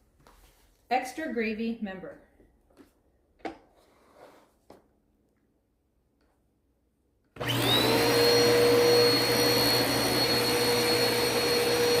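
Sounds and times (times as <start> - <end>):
vacuum cleaner motor whine: 7.4 - 12.0.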